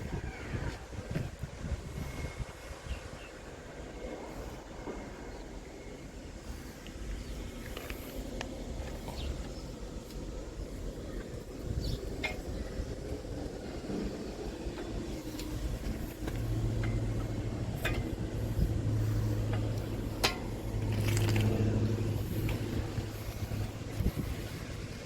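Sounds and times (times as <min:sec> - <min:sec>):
loader engine running: 0:07.6 - 0:25.0.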